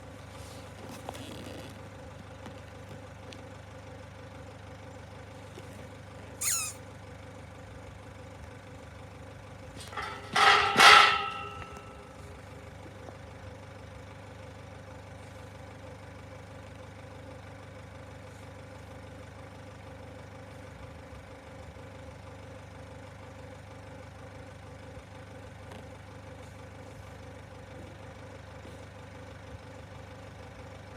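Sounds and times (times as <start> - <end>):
bird calling: 6.4 - 6.8
harsh double bird call: 6.4 - 6.8.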